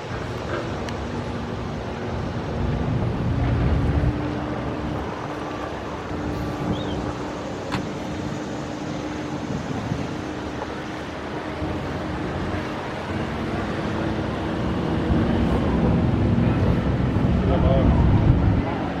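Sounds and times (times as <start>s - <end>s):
engine humming: 0.0s - 19.0s
outdoor background noise: 0.0s - 19.0s.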